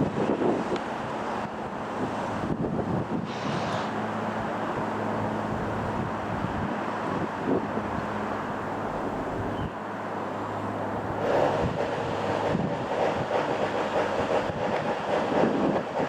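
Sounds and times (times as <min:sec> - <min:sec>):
wind buffeting microphone: 0:00.0 - 0:09.8, 0:10.8 - 0:16.0
distant engine drone: 0:00.0 - 0:16.0.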